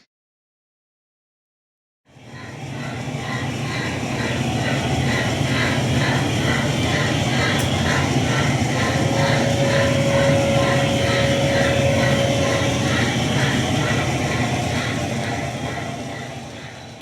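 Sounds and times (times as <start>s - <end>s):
steam locomotive exhaust chuffs: 2.4s - 17.0s
steady tone: 5.6s - 16.8s
low rumble: 8.0s - 15.0s.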